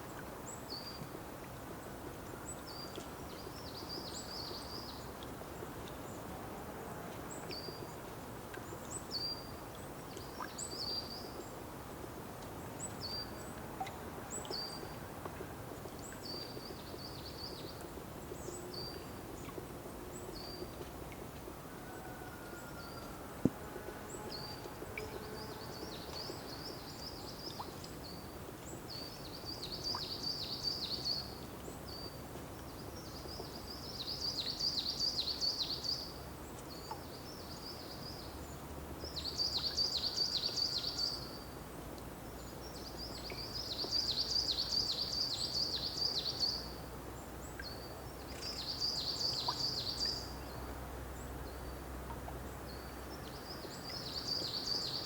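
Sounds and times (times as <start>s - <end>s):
songbird singing: 12.5s - 55.0s.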